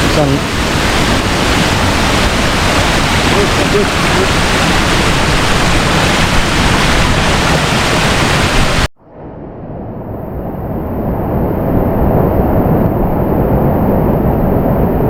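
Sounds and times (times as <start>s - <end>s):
fast-flowing river: 0.0s - 8.9s
waterfall roaring: 0.0s - 8.9s.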